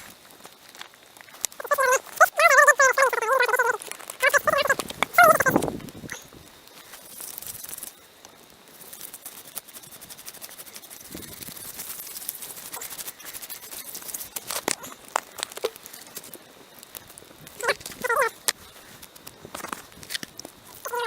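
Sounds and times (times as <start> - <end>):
blade scraping charred wood: 8.7 - 21.0.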